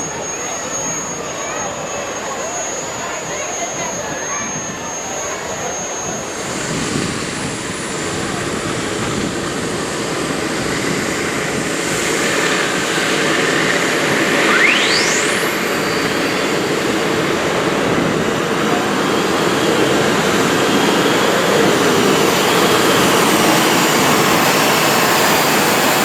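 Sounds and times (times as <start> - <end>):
tractor engine at full throttle: 6.4 - 26.0
rising whistle: 13.9 - 17.8.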